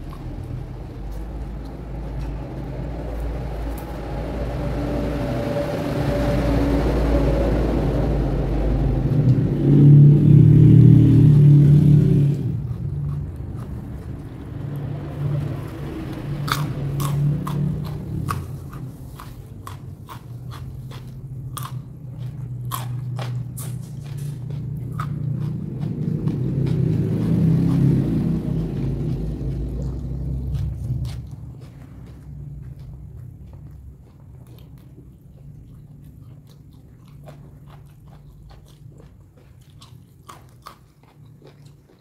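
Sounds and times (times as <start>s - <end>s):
chewing crunchy food: 0.0s - 4.0s, 9.2s - 42.0s.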